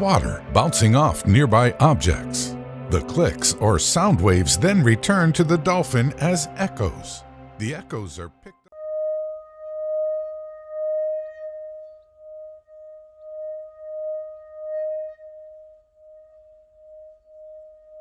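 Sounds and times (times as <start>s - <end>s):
sustained ringing tone: 8.8s - 18.0s.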